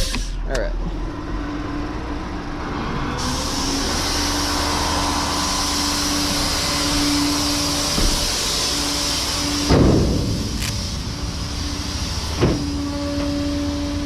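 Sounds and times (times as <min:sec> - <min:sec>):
hydraulic mechanical whine: 0:00.0 - 0:14.0
wide hiss: 0:03.2 - 0:14.0.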